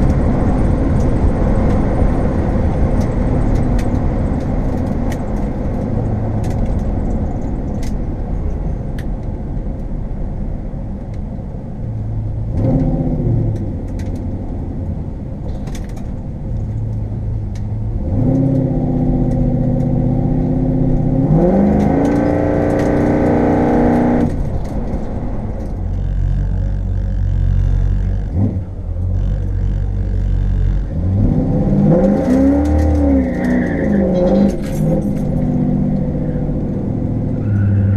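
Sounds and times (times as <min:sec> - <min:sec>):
light rattles and clicks: 0:00.0 - 0:10.0, 0:13.5 - 0:14.6, 0:15.4 - 0:20.0, 0:32.0 - 0:36.8
road drone: 0:00.0 - 0:37.9
car engine revving: 0:17.8 - 0:37.9.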